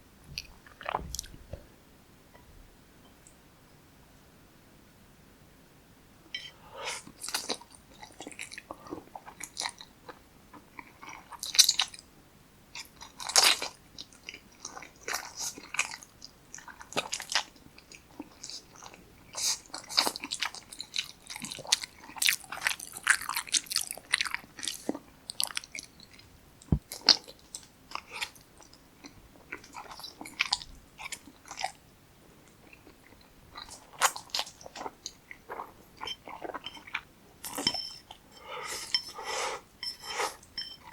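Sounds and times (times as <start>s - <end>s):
person chewing and smacking: 12.8s - 31.8s, 32.5s - 39.2s.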